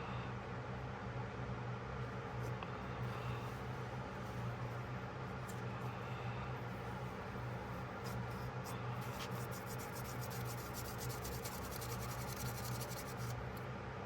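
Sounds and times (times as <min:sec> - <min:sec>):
scrubbing a pocketknife: 0:07.7 - 0:13.6.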